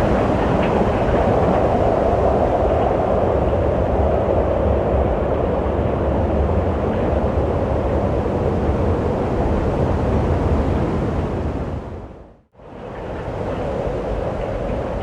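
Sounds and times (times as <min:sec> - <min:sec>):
rushing wind with deep rumble: 0:00.0 - 0:15.0.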